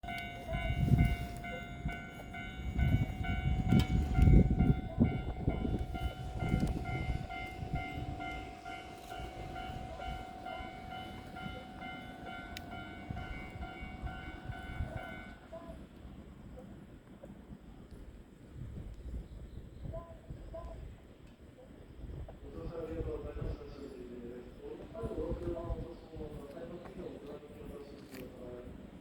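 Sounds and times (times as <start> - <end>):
steady whine: 0.0 - 15.5
train rumble: 0.0 - 19.1.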